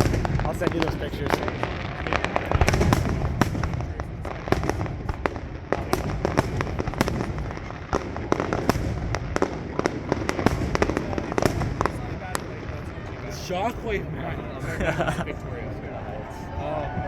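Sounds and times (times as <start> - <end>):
low rumble of booms: 0.0 - 13.3
fireworks cracks and bangs: 0.0 - 15.2.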